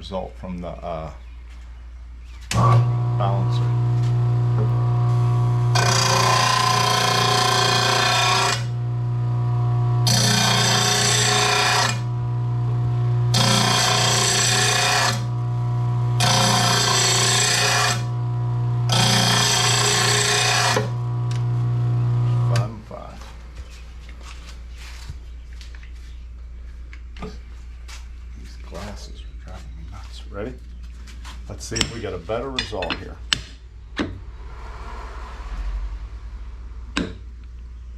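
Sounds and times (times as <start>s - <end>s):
sharpener motor running: 2.6s - 22.6s
steel blade grinding: 4.5s - 21.6s.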